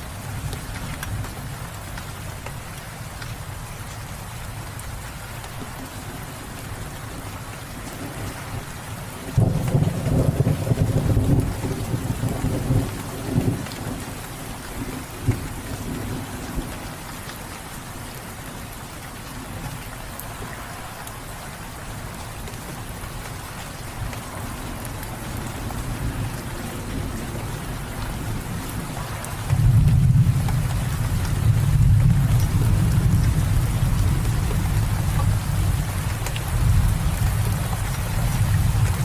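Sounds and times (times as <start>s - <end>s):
steady rain: 0.0s - 39.0s
thunder rumbling: 7.9s - 17.0s, 24.0s - 39.0s.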